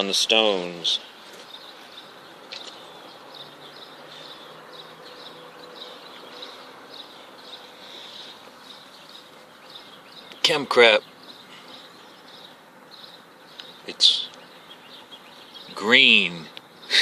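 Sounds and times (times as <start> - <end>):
insects chirping: 1.0 - 10.4.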